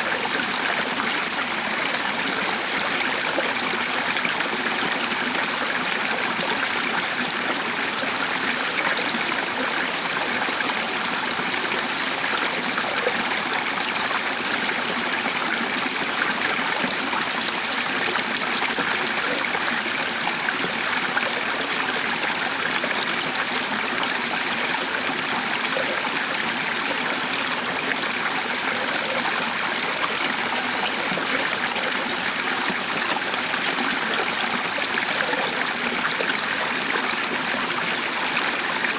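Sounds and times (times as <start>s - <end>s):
stream of running water: 0.0s - 38.9s.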